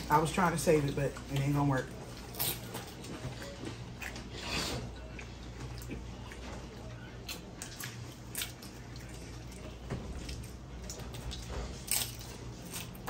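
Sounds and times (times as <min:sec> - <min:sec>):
wet chewing and mouth sounds: 0:00.0 - 0:13.0
chips crunching: 0:11.2 - 0:13.0.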